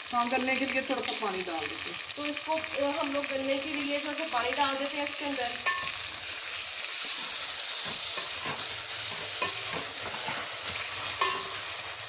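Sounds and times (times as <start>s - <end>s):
onions sizzling in a pot: 0.0s - 12.0s
spoon scraping and knocking pot: 5.6s - 6.0s, 7.8s - 11.8s.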